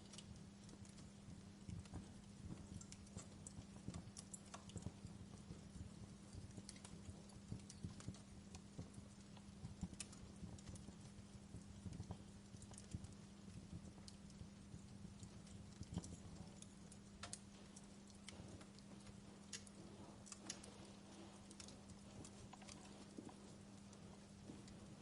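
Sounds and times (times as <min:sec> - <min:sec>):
steady low hum: 0:00.0 - 0:25.0
wood fire crackling: 0:00.0 - 0:25.0.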